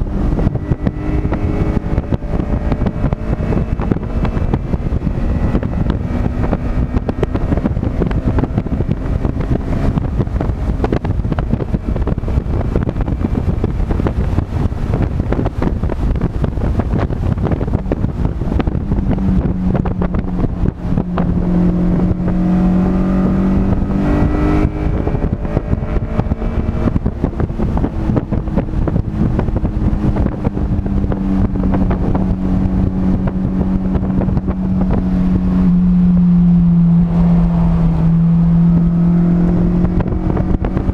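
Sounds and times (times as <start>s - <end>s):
car engine running hard: 0.0s - 40.9s
wind rush: 0.0s - 40.9s.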